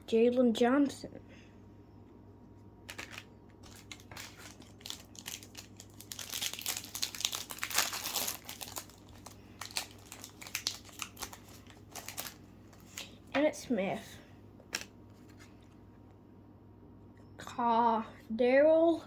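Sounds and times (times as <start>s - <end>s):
plastic wrapper crinkling and tearing: 2.8s - 13.3s, 14.7s - 15.5s.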